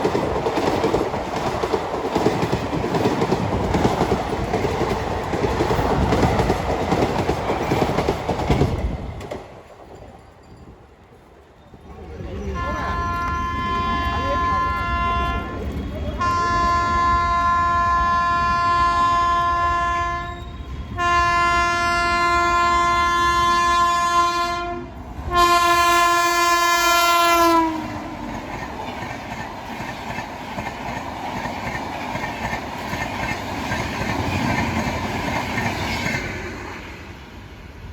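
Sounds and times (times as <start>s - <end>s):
train rumbling and clattering past: 0.0s - 37.9s
locomotive horn blasts: 12.6s - 15.6s, 16.2s - 20.4s, 21.0s - 28.1s.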